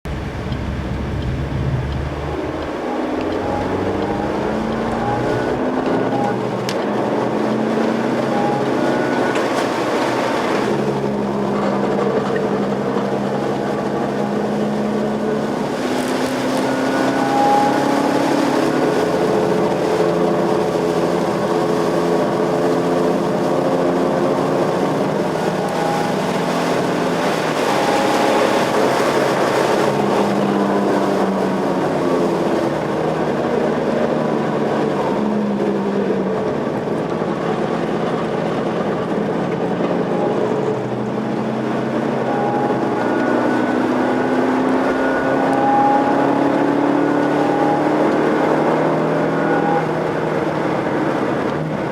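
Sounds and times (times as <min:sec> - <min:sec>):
car engine accelerating hard: 0:00.0 - 0:51.9
road and wind noise: 0:00.0 - 0:51.9.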